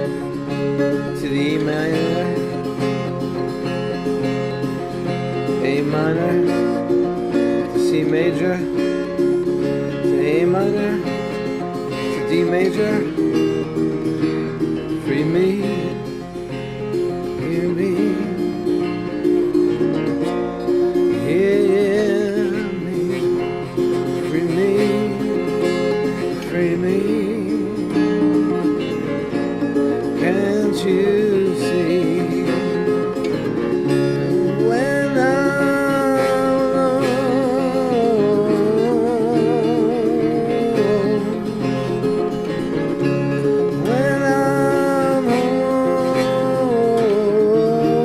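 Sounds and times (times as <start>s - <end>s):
acoustic guitar strumming chords: 0.0s - 48.0s.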